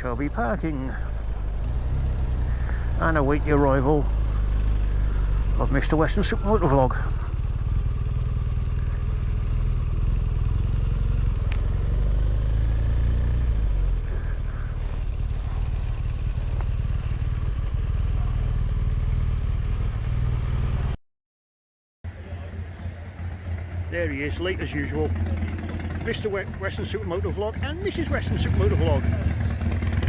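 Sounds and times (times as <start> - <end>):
motorcycle engine at low revs: 0.0 - 21.0, 22.1 - 30.0.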